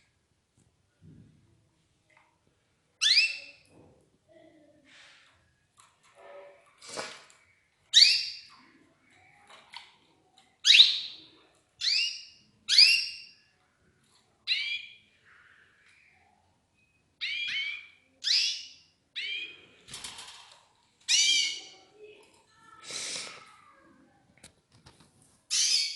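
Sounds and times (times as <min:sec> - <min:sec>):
canaries calling: 0:11.8 - 0:13.3, 0:17.2 - 0:19.6, 0:21.1 - 0:21.7, 0:25.5 - 0:25.9.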